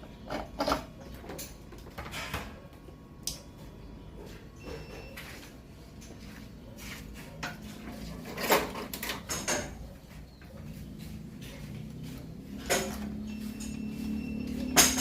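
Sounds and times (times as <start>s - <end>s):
metal tools clinking: 12.5s - 14.0s.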